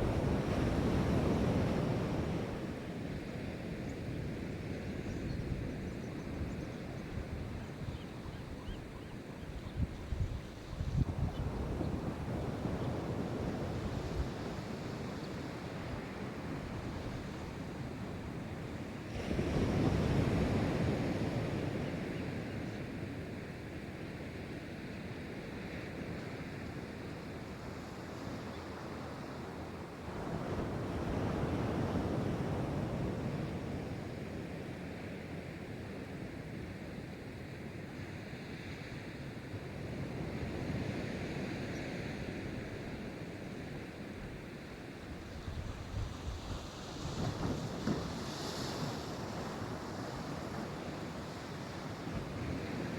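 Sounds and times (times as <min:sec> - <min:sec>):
waves crashing: 0:00.0 - 0:04.7, 0:43.6 - 0:52.9
surf rushing wash: 0:00.0 - 0:04.9, 0:26.4 - 0:52.9.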